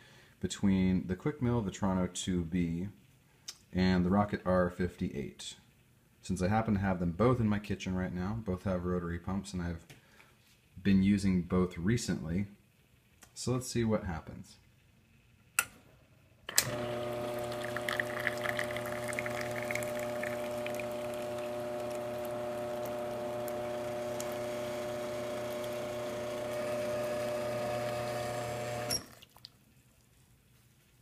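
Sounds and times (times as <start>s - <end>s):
espresso machine pump humming: 16.5s - 29.2s.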